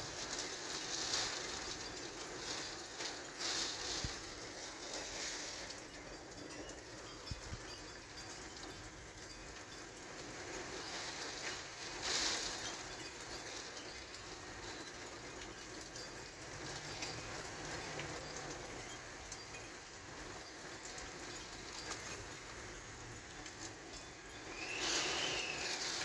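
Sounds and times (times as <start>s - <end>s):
rain: 0.0s - 26.0s
wind: 0.0s - 26.0s.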